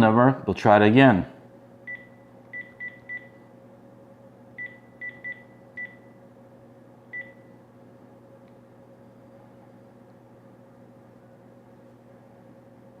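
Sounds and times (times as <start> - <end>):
faint steady hum: 0.0 - 13.0
phone keypad beeps: 1.9 - 3.4, 4.6 - 6.1, 7.1 - 7.5.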